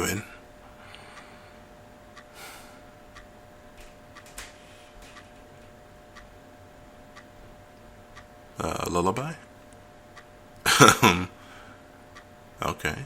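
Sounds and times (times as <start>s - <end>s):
faint steady hum: 0.0s - 13.0s
clock ticking softly: 2.1s - 6.4s, 7.1s - 8.8s, 10.1s - 10.7s, 12.1s - 13.0s.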